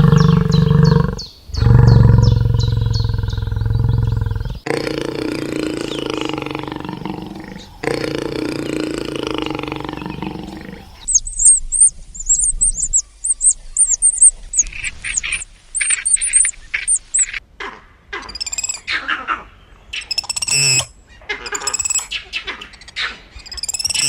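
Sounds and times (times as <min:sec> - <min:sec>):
low roar: 0:00.0 - 0:11.1
lower bird calls: 0:00.0 - 0:17.4, 0:19.9 - 0:20.9, 0:23.4 - 0:24.0
small birds twittering: 0:00.0 - 0:17.4, 0:18.2 - 0:18.9, 0:21.5 - 0:24.0.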